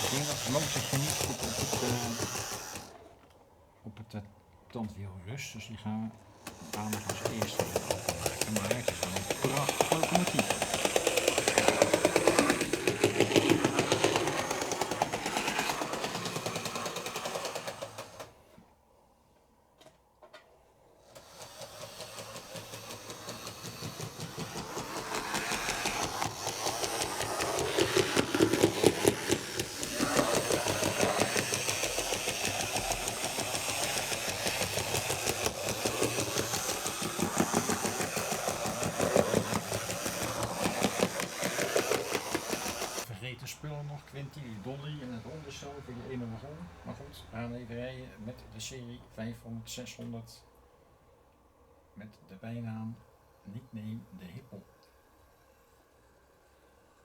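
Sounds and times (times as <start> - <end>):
model train motor buzzing: 0.0 - 3.3, 6.2 - 18.5, 21.0 - 43.1.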